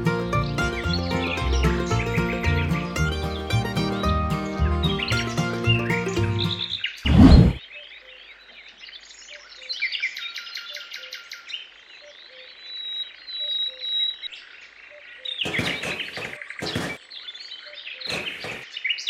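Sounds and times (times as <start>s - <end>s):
small birds chirping: 0.1s - 19.0s
loud thump: 7.1s - 7.6s
sharp knocks: 15.4s - 17.0s, 18.1s - 18.7s.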